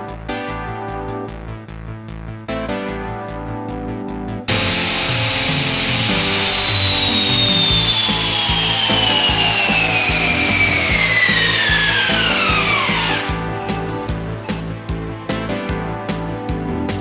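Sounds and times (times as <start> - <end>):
background music: 0.0 - 17.0
cordless drill grinding into wood: 4.5 - 13.5.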